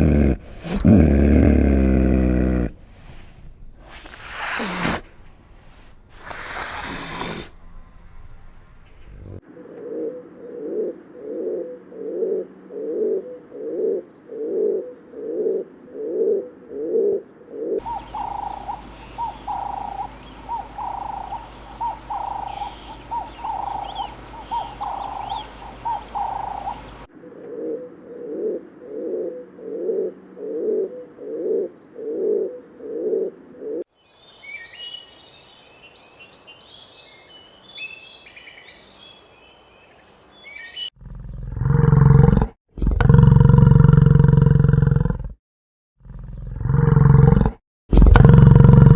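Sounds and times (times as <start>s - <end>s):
higher animal call: 0.0s - 9.4s, 17.8s - 27.9s
low animal call: 0.0s - 9.4s, 17.8s - 31.7s
small birds chirping: 0.0s - 9.4s, 17.8s - 27.1s, 34.0s - 40.9s
steady hum: 17.9s - 27.1s.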